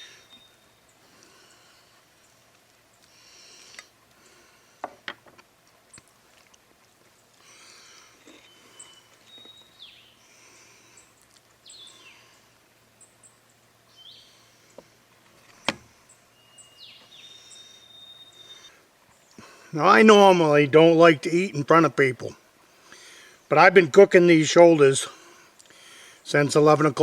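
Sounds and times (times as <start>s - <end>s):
birds singing: 0.0s - 4.4s, 7.1s - 20.6s.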